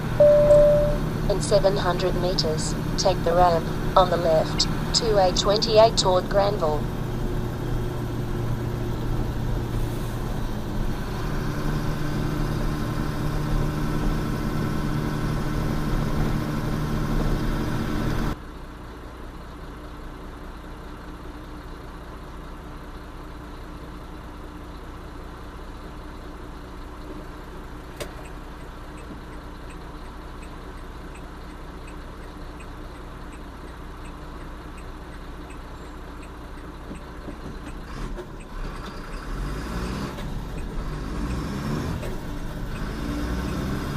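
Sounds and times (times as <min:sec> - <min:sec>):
truck engine running: 0:00.0 - 0:43.9
faint ticks: 0:28.0 - 0:37.8.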